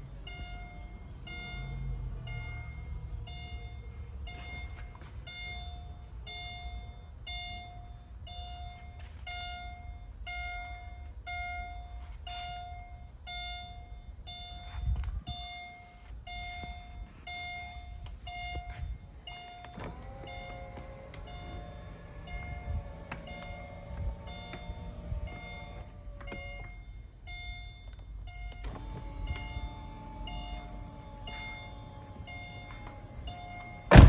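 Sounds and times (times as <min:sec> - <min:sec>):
car warning chime beeping: 0:16.3 - 0:34.0.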